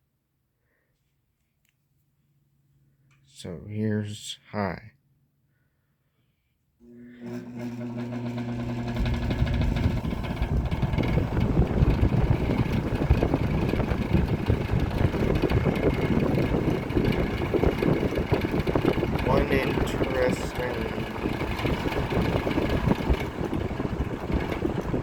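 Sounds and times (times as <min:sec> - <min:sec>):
fan motor hum: 0:06.8 - 0:25.0
rush of air from fan: 0:06.8 - 0:25.0.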